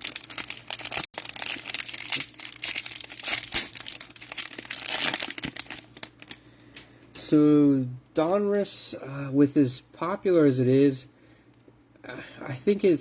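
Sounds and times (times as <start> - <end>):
plastic wrapper crinkling and tearing: 0.0 - 6.4.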